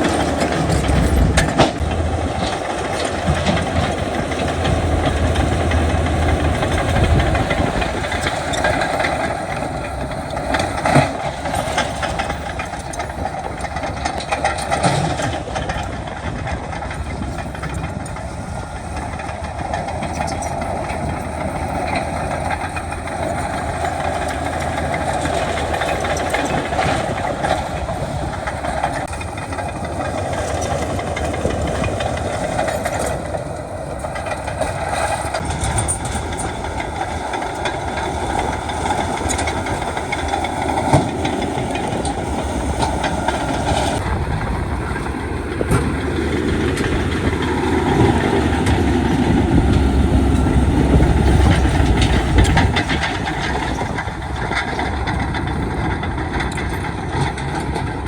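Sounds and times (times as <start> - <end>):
heavy machinery engine running: 0.0 - 58.0.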